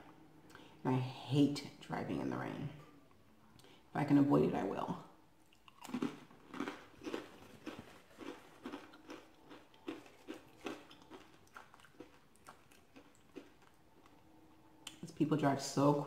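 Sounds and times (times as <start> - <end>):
chewing crunchy chips: 5.4 - 14.3.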